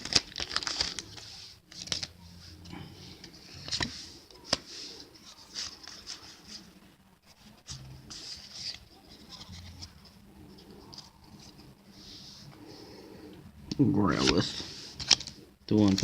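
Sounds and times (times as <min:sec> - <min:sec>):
foil wrapper crinkling: 0:00.0 - 0:02.1
cards rustling and sliding: 0:00.0 - 0:12.8, 0:14.1 - 0:16.0.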